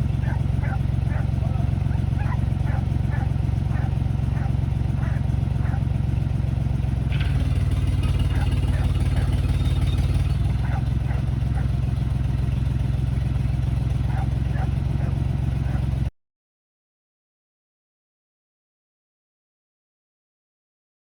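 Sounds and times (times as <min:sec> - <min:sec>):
engine running: 0:00.0 - 0:16.1.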